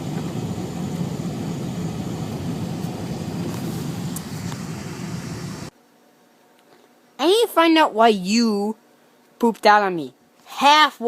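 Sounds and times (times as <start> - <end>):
car cabin engine hum: 0.0 - 5.7.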